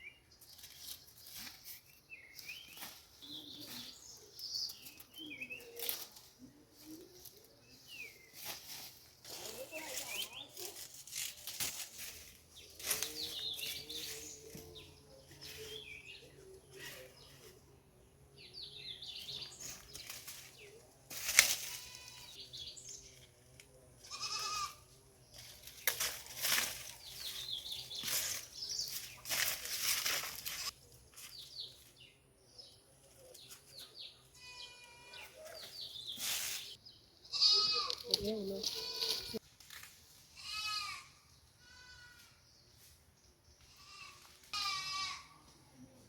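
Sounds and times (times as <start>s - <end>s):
goat bleating: 21.7s - 22.3s, 24.0s - 24.9s, 34.4s - 35.4s, 37.3s - 39.4s, 40.4s - 42.3s, 43.7s - 45.4s.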